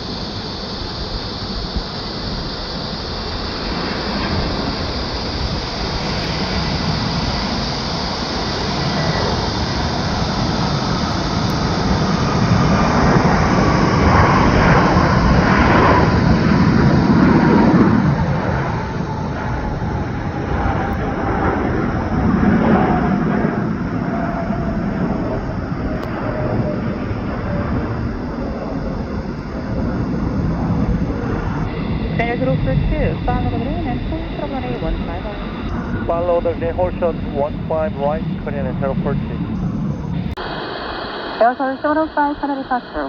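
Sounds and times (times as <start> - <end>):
jet airliner passing: 0.0 - 43.0
jet engine whine falling in pitch: 0.0 - 43.0.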